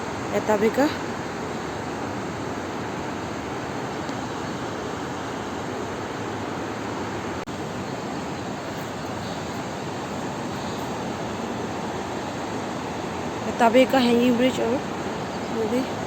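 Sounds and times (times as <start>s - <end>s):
fast river rushing: 0.0s - 16.0s.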